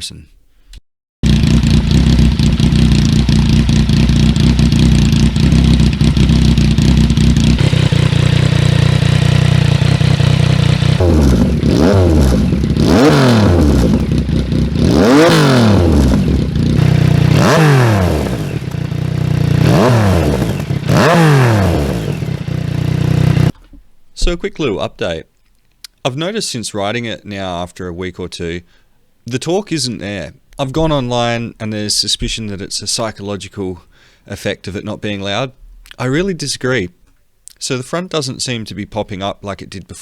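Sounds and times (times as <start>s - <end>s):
motorcycle engine idling and revving: 1.2s - 23.6s.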